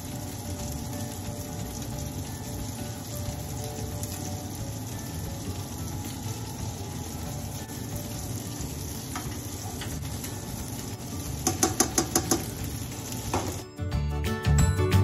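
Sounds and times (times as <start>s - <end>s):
rice sizzling in a pan: 0.0s - 13.8s
spoon stirring in pan: 6.8s - 13.6s
spoon tapping against pan: 11.4s - 12.7s.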